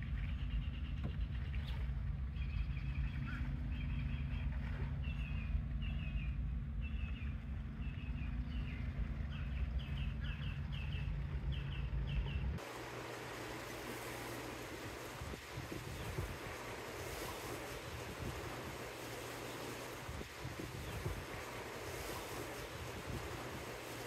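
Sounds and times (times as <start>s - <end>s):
bird chirping: 0.0s - 12.6s
low rumble: 0.0s - 12.6s
small waves on water: 0.0s - 24.0s
wind hiss: 12.5s - 24.0s.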